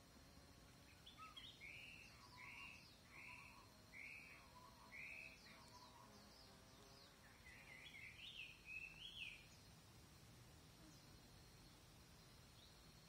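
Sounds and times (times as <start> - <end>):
high-pitched insect hum: 0.0 - 13.0
songbird warbling: 0.9 - 6.2.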